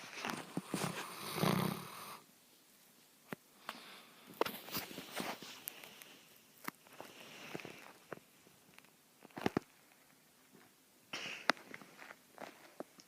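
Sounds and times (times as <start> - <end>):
quiet breathing: 0.0 - 2.3, 3.4 - 8.6, 11.1 - 12.9
puppy snoring: 0.5 - 2.2.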